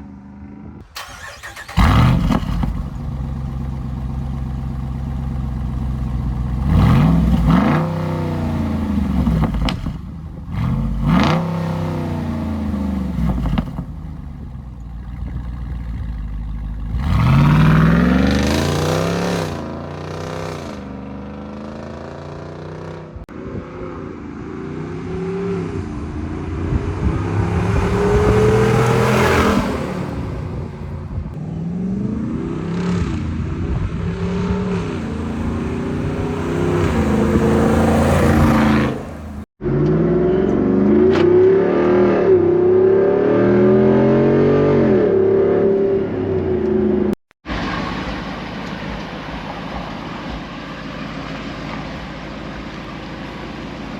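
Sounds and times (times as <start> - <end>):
engine exhaust revving: 0.8 - 23.0, 26.0 - 41.3.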